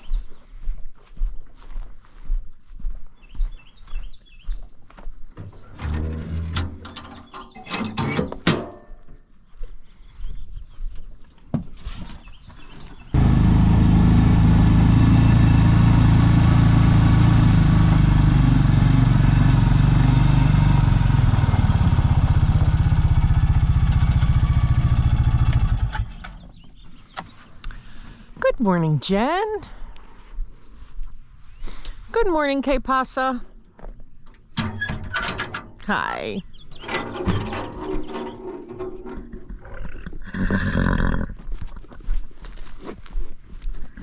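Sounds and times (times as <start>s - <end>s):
engine running: 13.2s - 26.4s.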